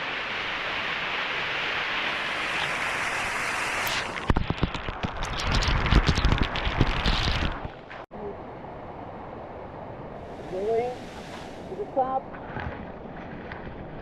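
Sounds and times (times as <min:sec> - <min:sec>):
waterfall rushing: 0:00.0 - 0:04.2.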